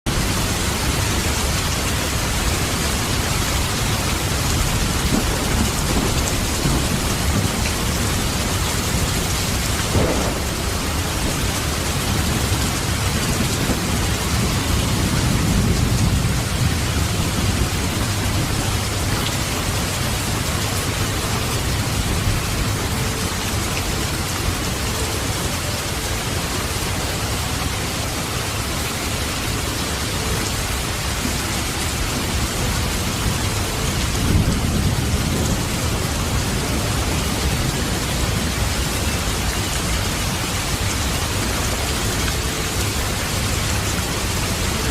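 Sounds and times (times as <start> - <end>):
heavy rain falling: 0.0 - 44.9
low rumble of thunder: 0.1 - 24.8, 30.0 - 41.1.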